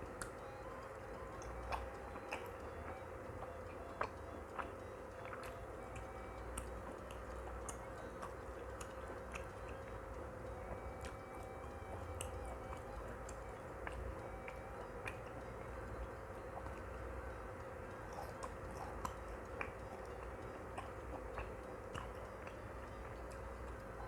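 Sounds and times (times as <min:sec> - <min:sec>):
close-up chewing: 0:00.0 - 0:24.0
wet mouth clicks and smacks: 0:01.4 - 0:10.0, 0:18.1 - 0:23.9.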